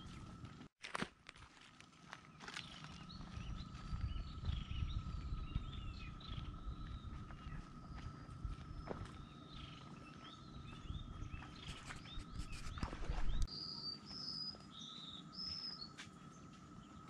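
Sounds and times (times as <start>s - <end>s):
birds chirping: 2.2s - 17.0s
low rumble: 3.0s - 9.4s.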